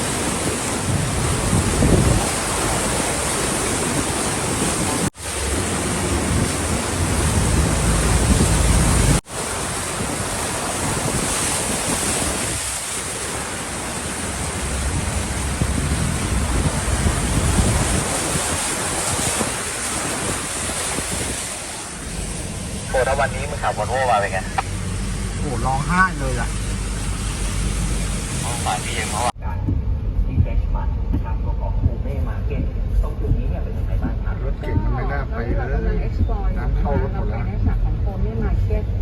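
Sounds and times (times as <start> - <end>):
wind buffeting microphone: 0.0 - 12.9, 14.3 - 23.8, 29.4 - 39.0
floodwater rushing: 0.0 - 29.4.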